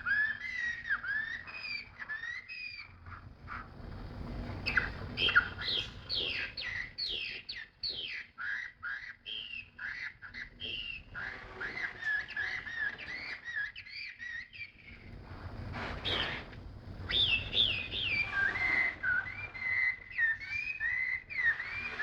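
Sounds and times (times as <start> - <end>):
songbird singing: 4.6 - 8.6, 16.0 - 16.4, 17.1 - 18.4.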